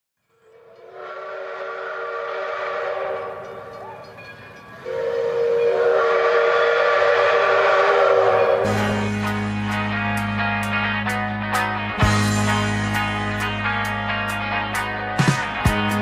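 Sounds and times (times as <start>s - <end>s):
long whistle blasts: 0.6s - 4.0s, 4.8s - 8.9s.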